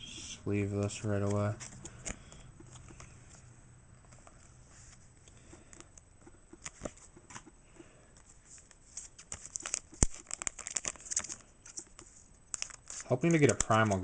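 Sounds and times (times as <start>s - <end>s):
cards rustling in plastic sleeve: 0.8s - 5.9s, 6.5s - 7.5s, 8.2s - 14.0s.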